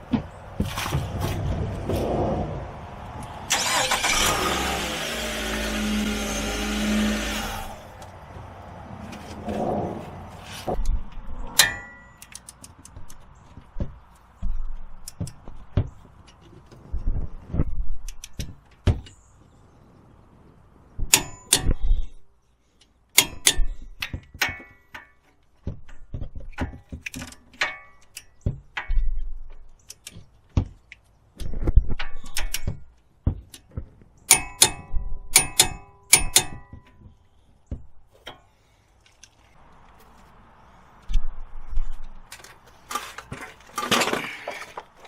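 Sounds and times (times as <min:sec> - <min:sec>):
metal tools clanking on car parts: 0:11.5 - 0:12.7, 0:34.3 - 0:37.2, 0:42.3 - 0:45.0.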